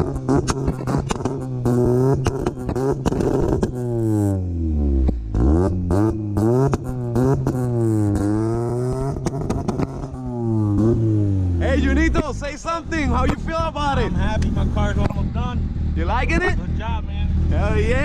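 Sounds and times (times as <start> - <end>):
exhaust pops and crackles: 0.0 - 4.4, 5.0 - 18.0
car engine revving: 0.0 - 18.0.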